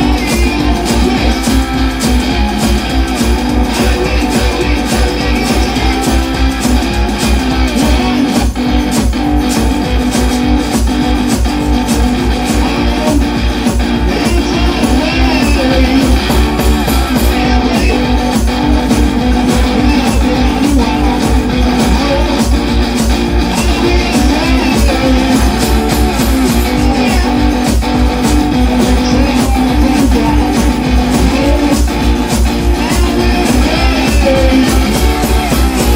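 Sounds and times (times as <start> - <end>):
bass line: 0.0 - 35.9
blues guitar music: 0.0 - 35.9
fast steady beat: 0.0 - 35.9.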